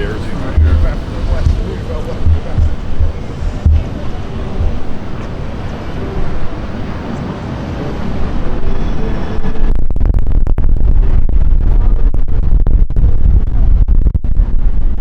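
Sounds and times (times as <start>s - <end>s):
street ambience: 0.0s - 9.7s
wind buffeting microphone: 0.0s - 12.3s.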